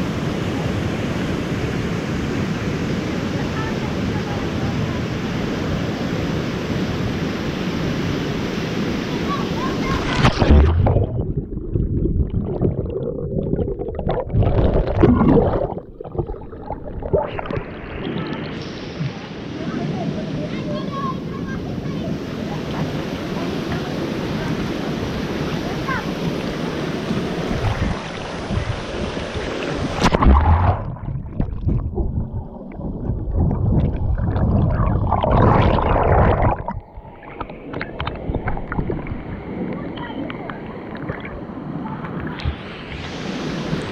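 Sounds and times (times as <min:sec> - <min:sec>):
rushing waterfall rumble: 0:00.0 - 0:41.0
low thumps: 0:30.0 - 0:36.9.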